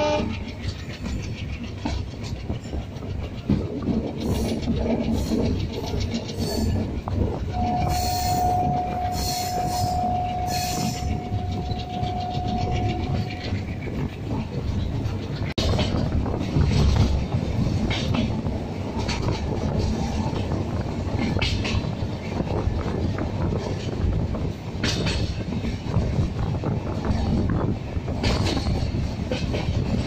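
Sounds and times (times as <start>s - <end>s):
train running noise: 0.0s - 30.0s
steady high tone: 7.5s - 13.6s.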